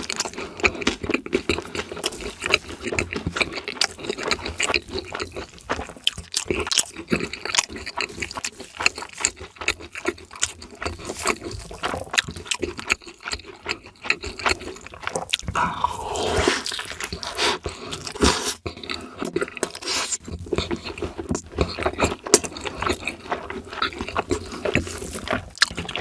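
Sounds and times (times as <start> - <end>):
crunching and chewing fried food: 0.0 - 26.0.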